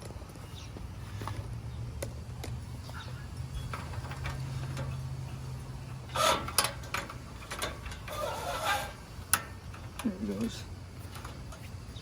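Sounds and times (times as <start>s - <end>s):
low steady hum: 0.0s - 12.0s
metal parts clicking: 3.6s - 11.8s
metal scrape: 3.6s - 11.8s.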